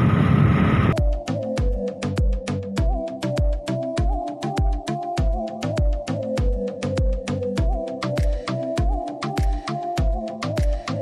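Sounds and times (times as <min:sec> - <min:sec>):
electronic beat music: 0:00.9 - 0:11.0.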